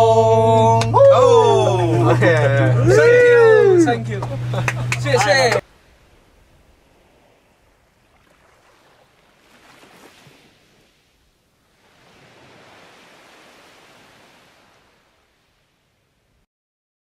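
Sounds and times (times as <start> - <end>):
soft wave swells: 0.0 - 16.1.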